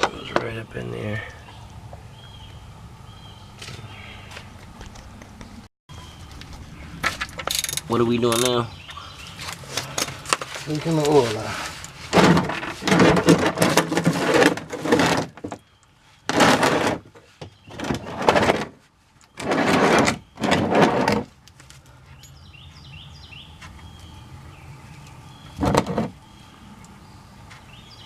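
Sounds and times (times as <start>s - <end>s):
birds chirping faintly: 0.0s - 12.1s, 15.4s - 16.4s, 17.1s - 28.0s.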